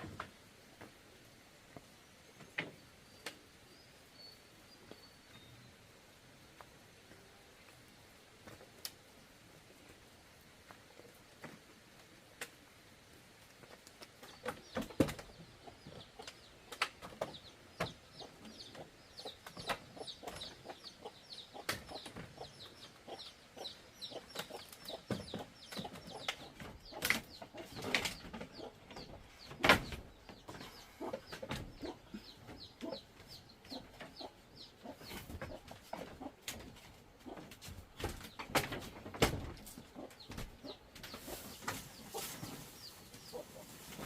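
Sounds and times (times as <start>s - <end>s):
chickens peeping: 14.2s - 44.0s.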